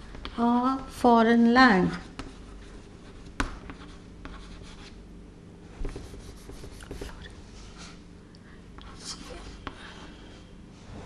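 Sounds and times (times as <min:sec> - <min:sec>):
scratchy writing on a board: 0:01.9 - 0:05.0, 0:05.8 - 0:07.3.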